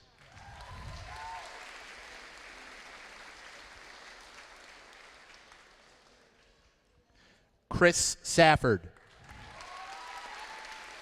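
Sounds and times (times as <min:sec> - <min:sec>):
audience applauding: 0:00.0 - 0:06.5, 0:09.0 - 0:11.0.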